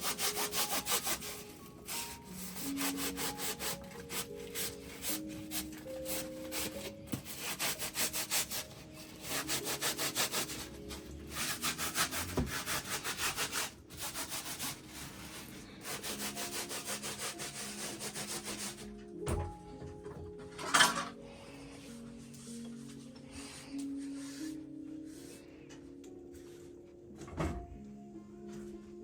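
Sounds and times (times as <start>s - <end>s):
rapid scraping strokes: 0.0s - 18.8s.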